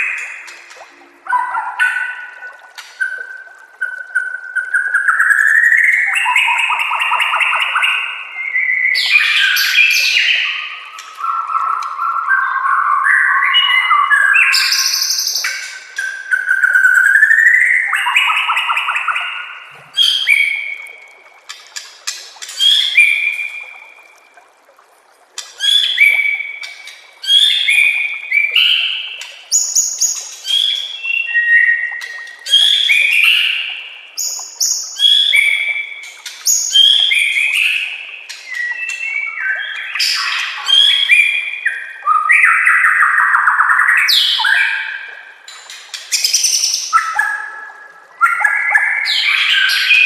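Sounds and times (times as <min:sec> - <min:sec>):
bird singing whistled phrases: 0:04.0 - 0:20.8, 0:25.6 - 0:26.6, 0:27.2 - 0:35.9, 0:38.5 - 0:44.9.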